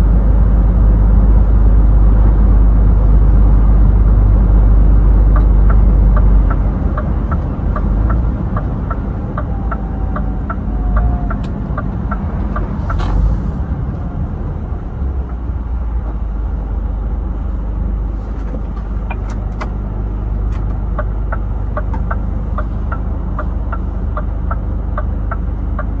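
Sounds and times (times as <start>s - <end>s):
truck engine and road rumble: 0.0s - 26.0s
turn-signal indicator ticking: 5.3s - 13.2s, 20.4s - 26.0s.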